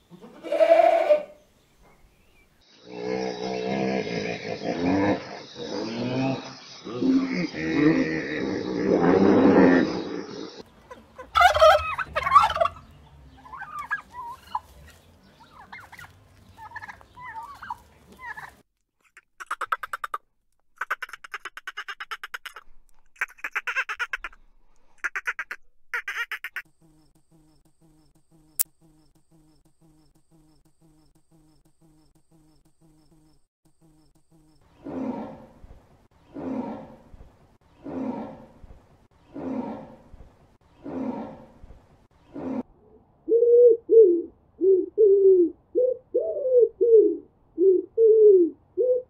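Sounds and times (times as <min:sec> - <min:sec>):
tiger roaring: 0:02.9 - 0:10.6, 0:34.8 - 0:35.7, 0:36.3 - 0:37.2, 0:37.8 - 0:38.7, 0:39.3 - 0:40.2, 0:40.8 - 0:42.9
turkey gobbling: 0:10.9 - 0:14.7, 0:15.4 - 0:18.6.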